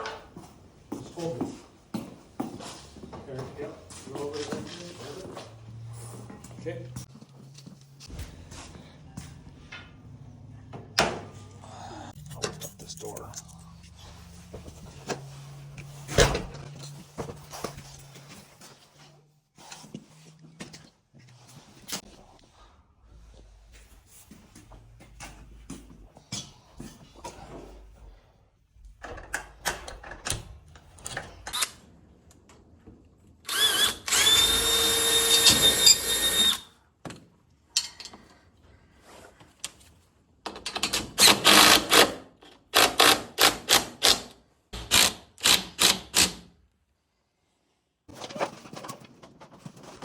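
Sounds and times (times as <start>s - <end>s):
power drill spinning: 33.5s - 36.7s, 44.8s - 46.3s.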